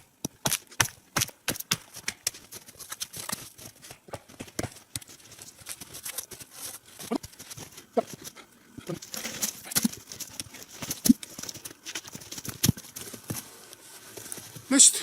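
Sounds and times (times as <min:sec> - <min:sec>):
logs and branches knocking: 0:08.9 - 0:13.4.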